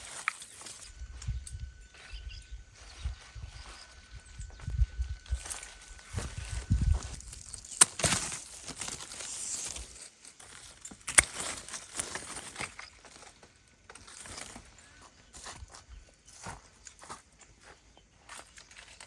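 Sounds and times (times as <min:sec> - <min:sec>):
plants rustling and crinkling: 0:00.0 - 0:19.0.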